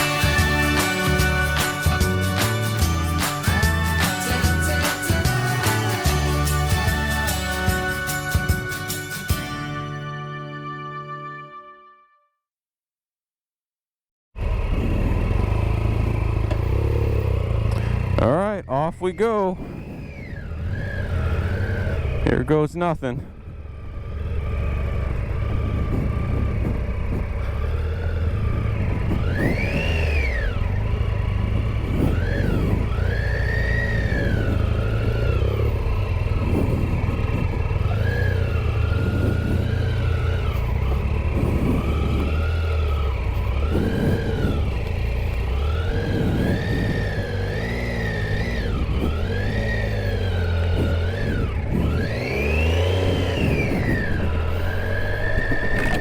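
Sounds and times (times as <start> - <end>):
motorcycle engine revving: 0.0 - 10.0, 14.4 - 56.0.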